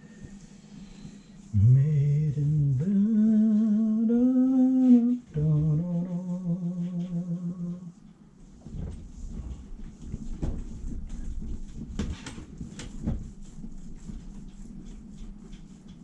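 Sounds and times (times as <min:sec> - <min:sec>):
man humming: 0:01.5 - 0:08.0.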